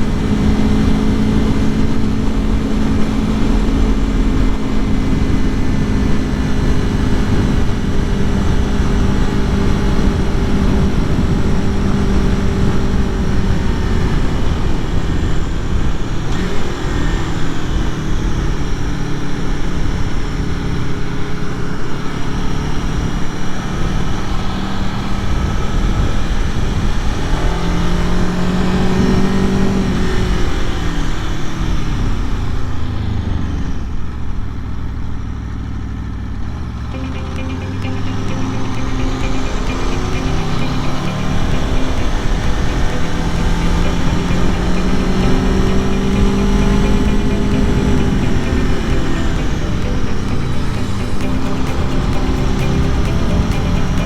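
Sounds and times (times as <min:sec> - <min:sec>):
motorcycle engine running: 0:36.7 - 0:54.0.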